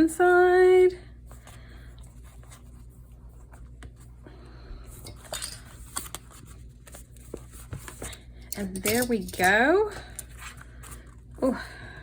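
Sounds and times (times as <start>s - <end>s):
hands handling paper journal: 5.2s - 8.2s.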